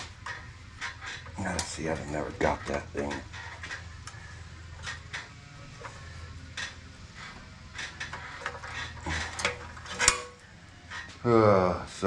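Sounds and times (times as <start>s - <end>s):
steady low hum: 0.0s - 12.0s
metal parts clinking: 7.7s - 10.5s.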